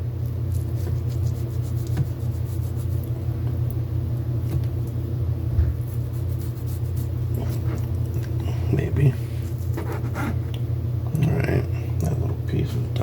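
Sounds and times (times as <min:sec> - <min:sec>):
low rumbling hum: 0:00.0 - 0:13.0.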